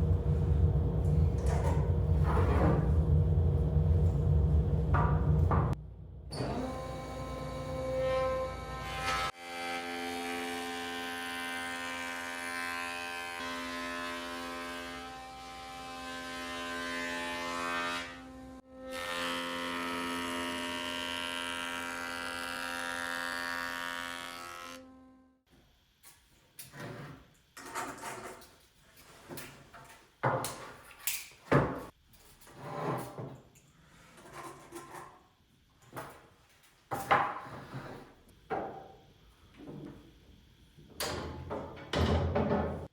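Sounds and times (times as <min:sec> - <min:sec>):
woodworking power tool humming: 0:06.3 - 0:25.2.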